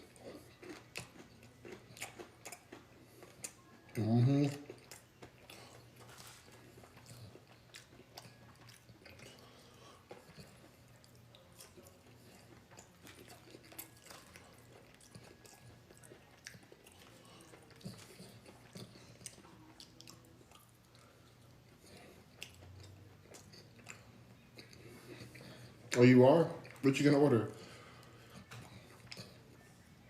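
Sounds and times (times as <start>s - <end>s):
person chewing: 0.0s - 29.7s.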